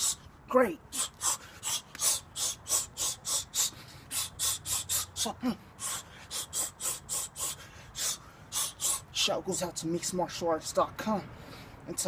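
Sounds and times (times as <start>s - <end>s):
sharp hissing exhalations: 0.9s - 9.1s.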